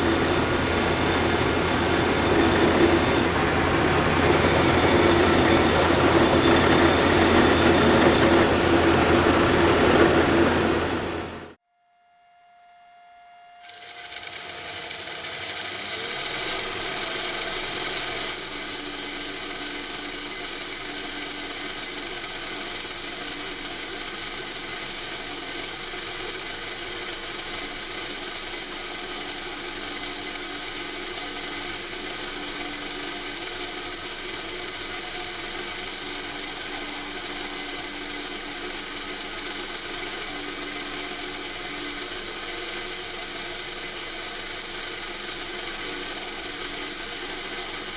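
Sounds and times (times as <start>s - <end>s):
power tool rasping hiss: 0.0s - 11.6s.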